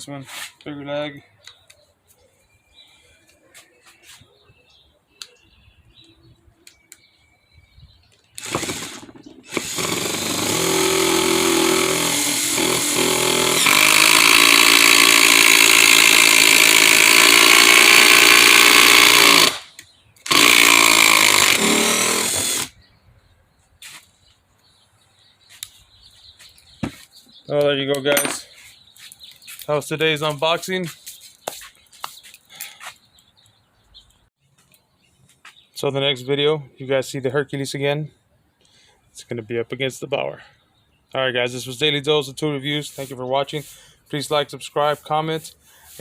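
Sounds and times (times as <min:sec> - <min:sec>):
impact driver hammering: 0:08.4 - 0:19.7.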